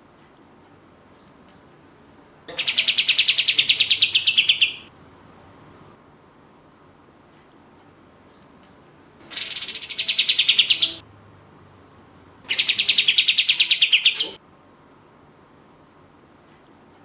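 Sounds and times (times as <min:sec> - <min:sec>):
songbird trilling: 0:02.5 - 0:04.9, 0:09.3 - 0:11.0, 0:12.5 - 0:14.4.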